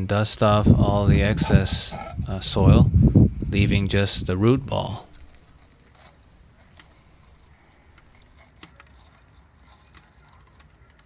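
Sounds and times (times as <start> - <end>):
low outdoor rumble: 0.0 - 5.6.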